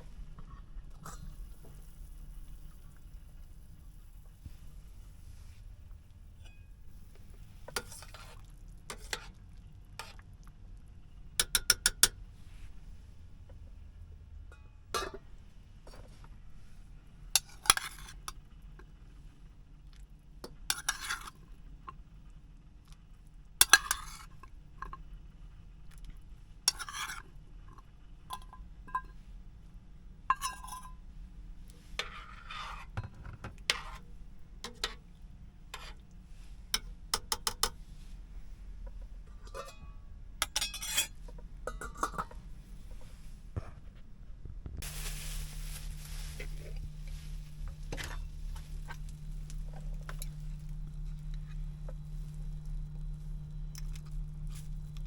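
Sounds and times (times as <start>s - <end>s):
low steady hum: 0.0s - 55.0s
metal utensils clinking on dishes: 30.3s - 31.0s, 39.4s - 42.4s.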